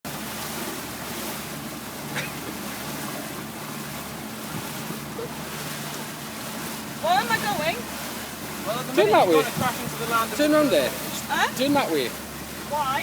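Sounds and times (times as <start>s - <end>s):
boat motor humming low: 0.1s - 13.0s
water rushing past boat: 0.1s - 13.0s.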